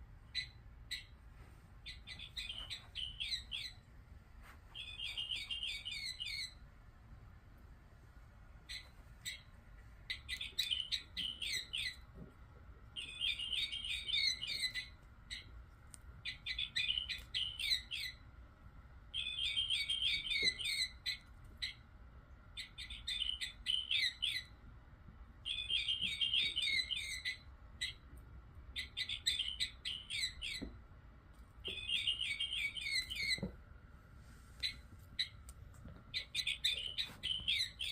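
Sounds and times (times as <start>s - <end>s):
electronic bird toy chirping: 0.3s - 1.1s, 1.8s - 3.8s, 4.8s - 6.6s, 10.1s - 12.0s, 13.0s - 15.5s, 16.2s - 18.2s, 19.2s - 21.8s, 22.6s - 24.5s, 25.4s - 28.0s, 28.8s - 30.7s, 31.6s - 33.5s, 36.2s - 37.9s.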